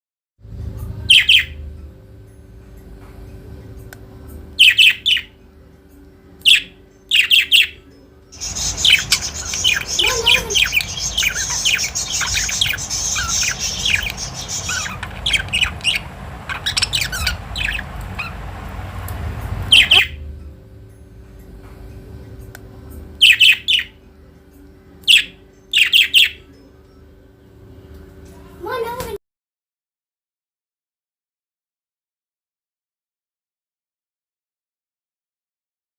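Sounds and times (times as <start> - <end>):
budgerigars chirping and chattering: 1.1 - 1.6, 4.6 - 5.3, 6.5 - 7.8, 8.4 - 20.2, 23.2 - 24.0, 25.1 - 26.4.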